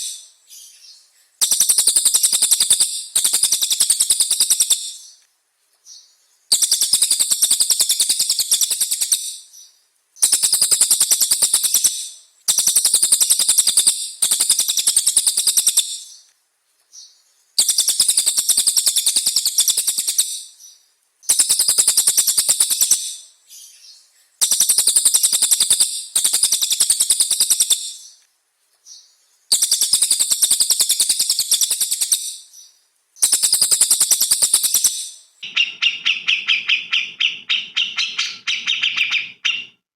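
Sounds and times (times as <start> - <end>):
songbird rattling trill: 1.4 - 5.0, 5.9 - 9.4, 10.2 - 16.0, 17.6 - 20.5, 21.3 - 23.2, 24.4 - 28.2, 29.5 - 32.5, 33.2 - 39.8.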